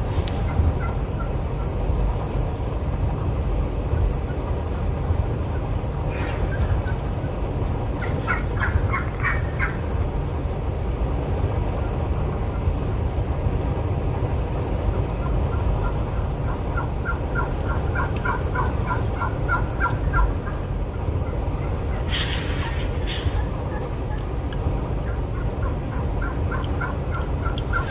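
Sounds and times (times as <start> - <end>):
wind rumble on microphone: 0.0 - 27.9
wild turkey calling: 0.3 - 1.8, 5.5 - 7.0, 8.0 - 9.9, 15.2 - 24.3, 25.0 - 27.9.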